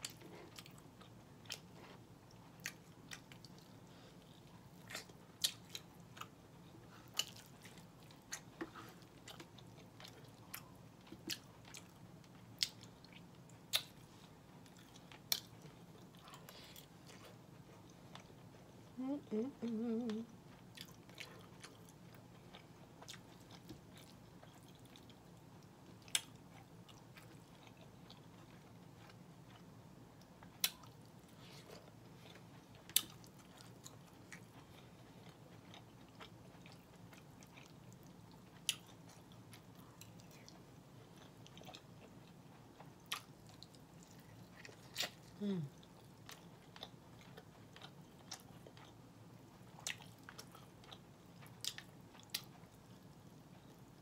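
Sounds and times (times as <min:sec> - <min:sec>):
chewing food: 0:00.0 - 0:54.0
faint steady hum: 0:00.0 - 0:54.0.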